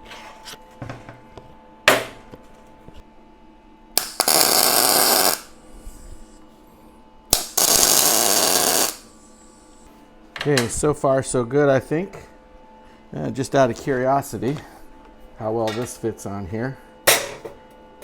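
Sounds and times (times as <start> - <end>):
welding arc crackle: 4.0 - 5.6, 7.3 - 9.1.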